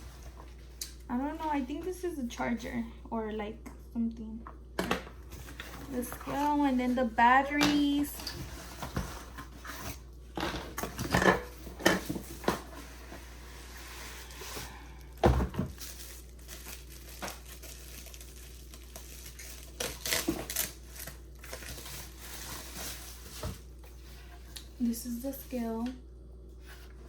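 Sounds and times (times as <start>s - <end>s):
packaging crinkling and rustling: 5.2s - 24.8s.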